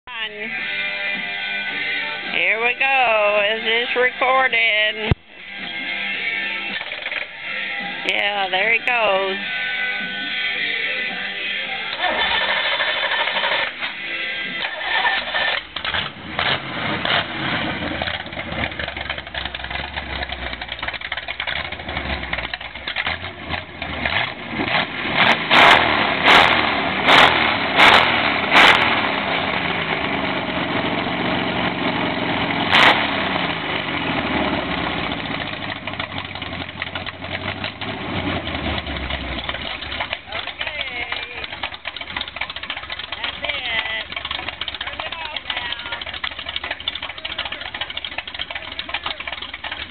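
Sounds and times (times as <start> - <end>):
engine running with revs rising: 0.1 - 49.9
sharp loud cracks: 11.9 - 14.0, 14.6 - 29.6.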